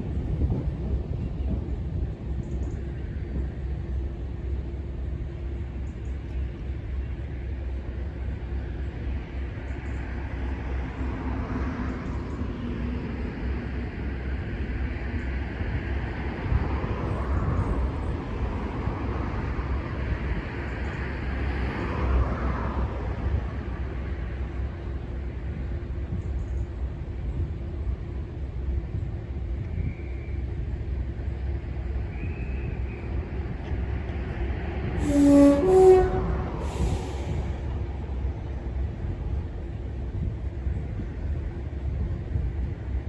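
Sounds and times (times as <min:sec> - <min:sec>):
heavy engine rumbling: 0:16.4 - 0:43.0.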